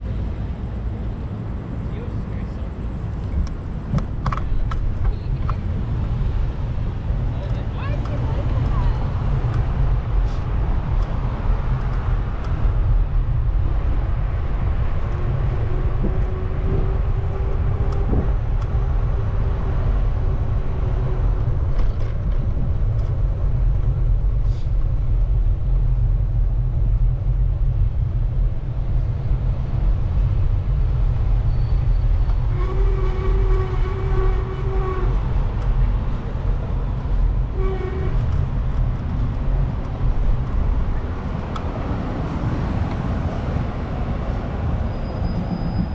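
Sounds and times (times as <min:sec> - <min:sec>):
wind rumbling on microphone: 0:02.6 - 0:45.9
horn sounding: 0:32.5 - 0:35.3, 0:37.5 - 0:38.4.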